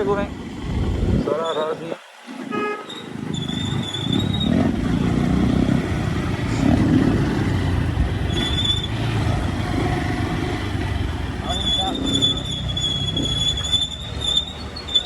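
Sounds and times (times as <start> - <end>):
short high squeak: 2.9 - 4.6, 8.3 - 9.0, 11.4 - 15.0
motorcycle engine running: 4.3 - 14.1.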